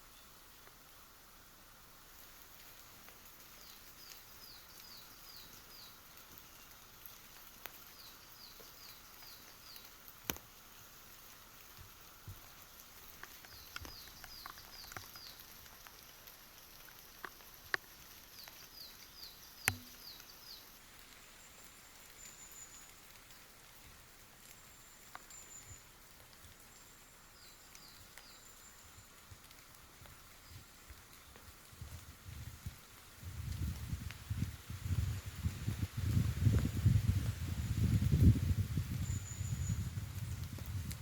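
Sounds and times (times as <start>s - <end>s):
faint steady hiss: 0.0s - 41.0s
raindrops dripping: 0.2s - 41.0s
songbird singing high notes: 19.3s - 20.6s.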